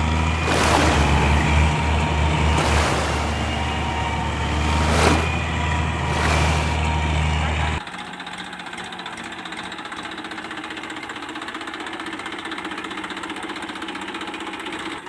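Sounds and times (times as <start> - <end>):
motor hum: 0.0 - 7.8
loud rushing swells: 0.4 - 6.9.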